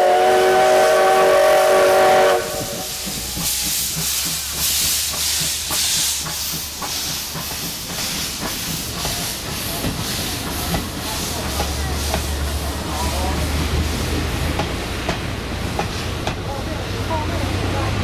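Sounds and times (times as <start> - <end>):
steam locomotive whistle: 0.0 - 4.5
rhythmic train clatter: 0.0 - 18.0
steam hissing: 0.0 - 18.0.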